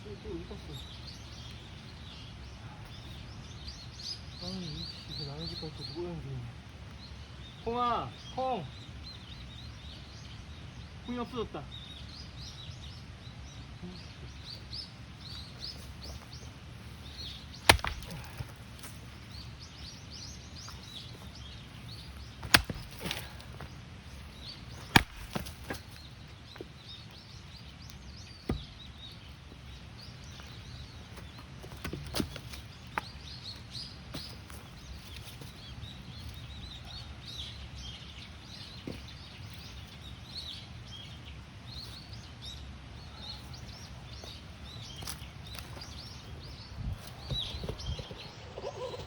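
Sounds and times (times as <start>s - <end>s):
small birds chirping: 0.0s - 49.0s
axe chopping firewood: 17.0s - 19.2s, 22.0s - 26.1s, 28.4s - 29.0s, 31.6s - 33.1s.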